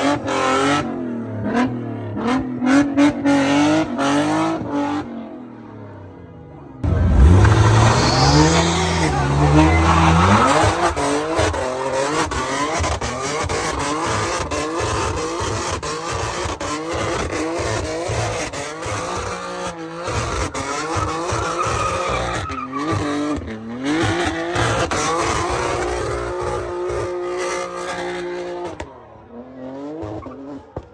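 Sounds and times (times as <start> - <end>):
car engine rumble: 6.4 - 13.9
car tyres squealing: 6.8 - 28.9.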